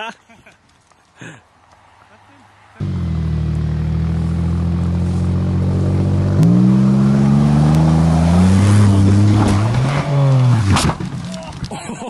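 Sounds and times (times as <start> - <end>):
car engine revving: 2.8 - 11.3.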